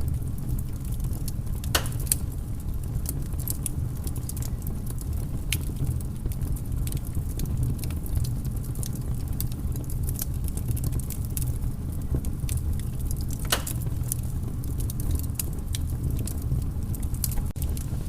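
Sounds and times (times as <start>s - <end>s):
fireplace fire crackling: 0.0s - 18.0s
low fire rumble: 0.0s - 18.0s.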